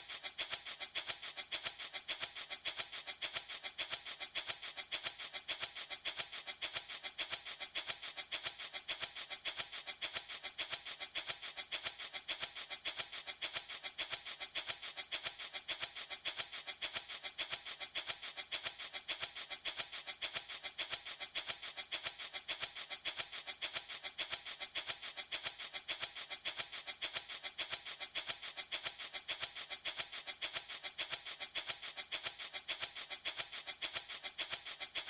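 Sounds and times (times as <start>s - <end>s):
baby rattle shaken: 0.0s - 35.0s.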